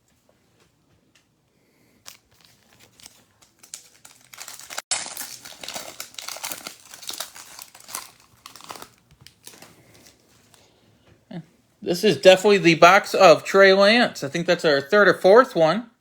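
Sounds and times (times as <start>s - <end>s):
wrapper crinkling and tearing: 2.0s - 10.6s.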